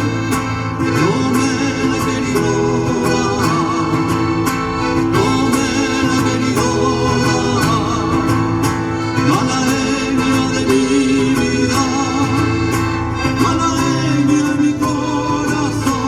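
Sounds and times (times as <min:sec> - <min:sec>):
accordion: 0:00.0 - 0:16.0
person singing: 0:04.9 - 0:08.6, 0:13.2 - 0:16.0.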